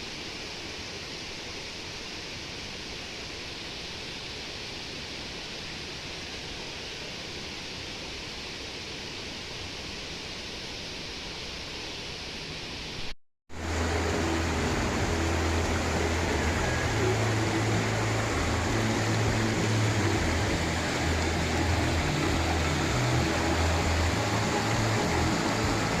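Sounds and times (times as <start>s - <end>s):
waterfall roaring: 13.6s - 26.0s.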